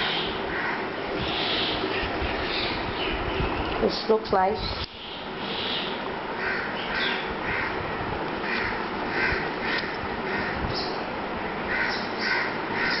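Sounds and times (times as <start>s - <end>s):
bird giving rough calls: 0.0s - 2.9s, 5.0s - 7.8s, 8.4s - 11.0s, 11.7s - 13.0s
steady background hiss: 0.0s - 13.0s.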